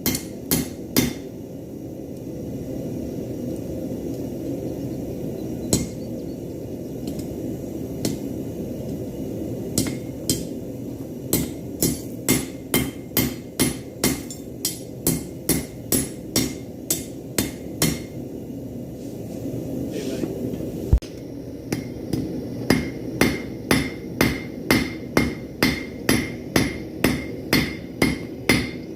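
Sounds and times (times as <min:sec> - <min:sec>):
hammer striking metal on anvil: 0:00.0 - 0:01.3, 0:05.7 - 0:06.0, 0:09.8 - 0:10.6, 0:11.3 - 0:18.2, 0:21.7 - 0:28.9
steady low rumble: 0:00.0 - 0:28.9.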